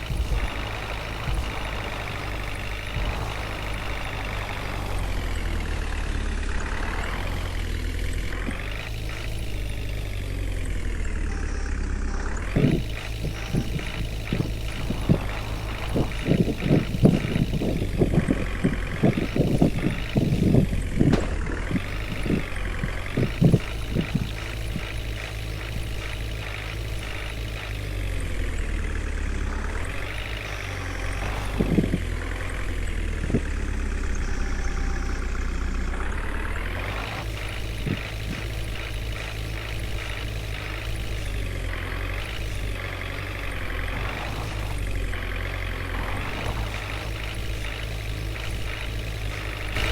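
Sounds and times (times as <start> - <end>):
truck engine running: 0.0 - 49.9
knocks and clatters: 12.4 - 27.7.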